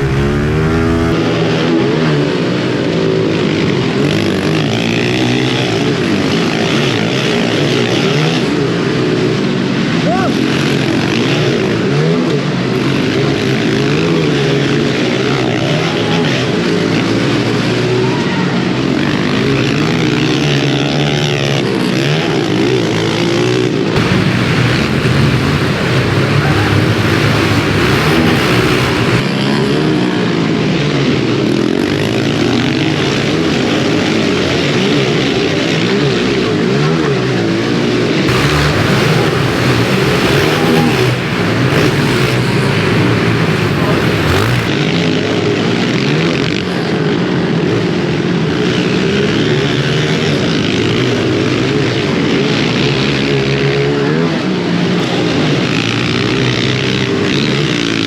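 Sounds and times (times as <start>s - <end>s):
pit bike engines revving: 0.0s - 18.0s, 18.7s - 29.4s, 37.8s - 44.8s.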